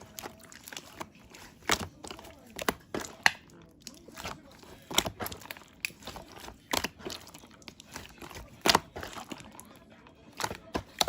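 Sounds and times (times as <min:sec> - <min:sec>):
crunching and crinkling: 0:00.0 - 0:11.0.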